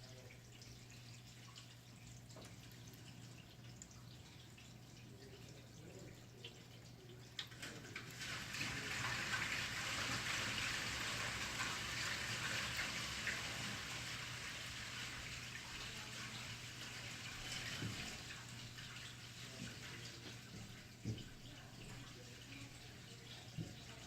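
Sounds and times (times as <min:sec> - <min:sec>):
faint water drips: 0:00.0 - 0:24.0
water rushing through pipe: 0:07.6 - 0:20.4.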